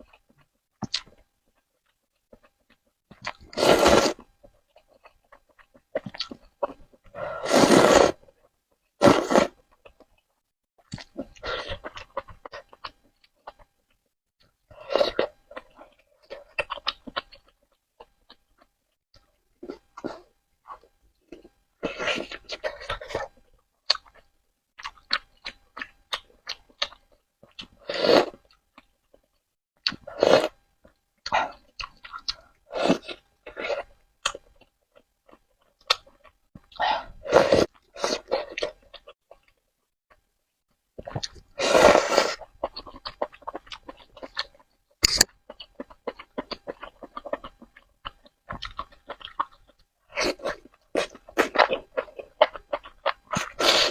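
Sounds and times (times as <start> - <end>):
wet chewing and mouth clicks: 0.0 - 3.6, 4.2 - 7.1, 9.6 - 14.2, 15.1 - 20.0, 22.2 - 40.3, 41.0 - 41.5, 42.1 - 53.9
noodles being slurped: 3.5 - 4.2, 7.4 - 8.2.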